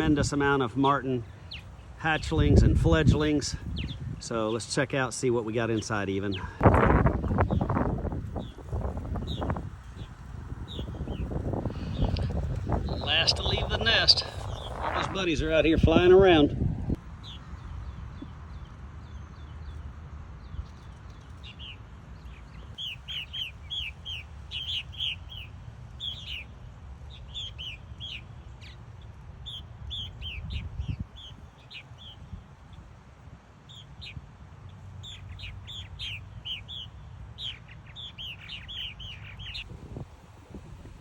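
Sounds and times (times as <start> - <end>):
birds chirping: 0.0 - 33.0, 33.6 - 41.0
low rumble: 10.4 - 17.0.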